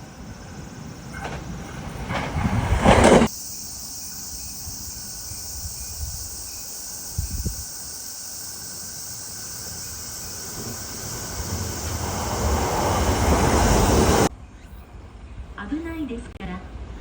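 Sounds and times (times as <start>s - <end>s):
electric train rushing past: 0.0s - 14.3s
steady high hiss: 3.3s - 14.3s.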